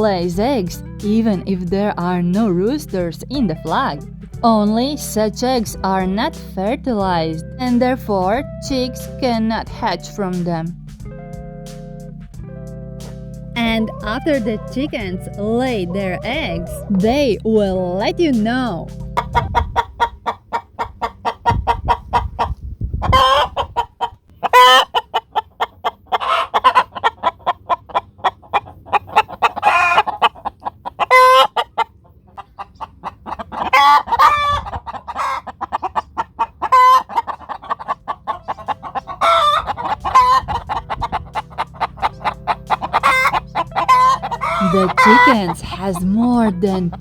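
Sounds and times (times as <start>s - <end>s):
hen clucking: 0.0s - 10.7s, 13.6s - 47.0s
hen squawking: 13.6s - 22.0s, 24.4s - 25.0s, 26.1s - 47.0s.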